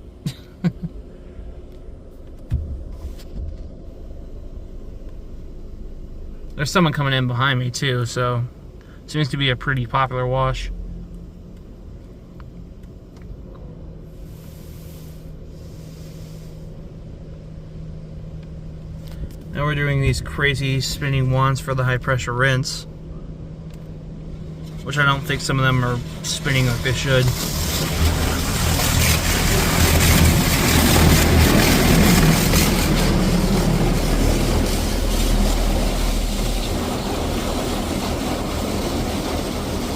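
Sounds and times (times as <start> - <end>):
muffled car wash hum: 0.0 - 39.9
spray hissing on car: 14.2 - 16.8, 26.0 - 39.9.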